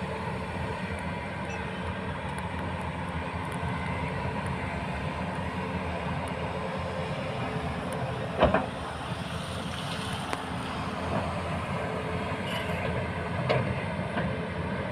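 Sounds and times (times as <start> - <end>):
diesel engines running: 0.0 - 14.9.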